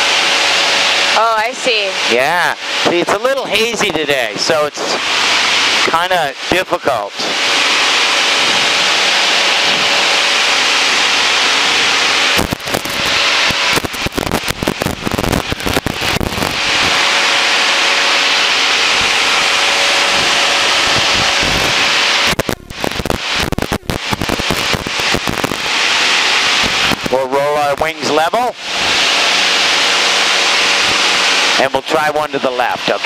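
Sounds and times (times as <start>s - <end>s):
aircraft engine drone in cabin: 0.0s - 33.0s
rapid crackling pops: 12.3s - 17.0s, 21.0s - 27.9s.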